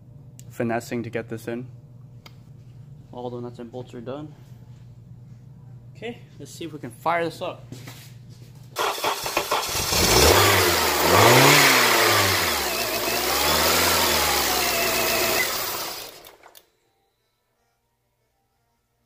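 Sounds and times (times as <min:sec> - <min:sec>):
car engine revving: 0:08.8 - 0:16.4
engine starter cranking: 0:08.8 - 0:16.6.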